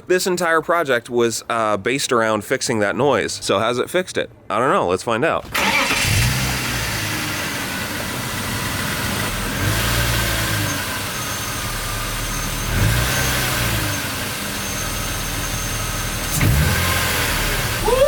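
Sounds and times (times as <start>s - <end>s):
car engine idling and revving: 5.5s - 18.0s.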